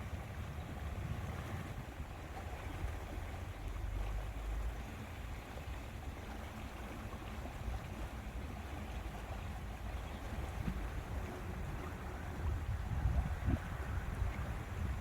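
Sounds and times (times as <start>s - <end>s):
wind rumbling on microphone: 0.0s - 4.1s, 7.8s - 15.0s
soft wash of water: 0.0s - 15.0s.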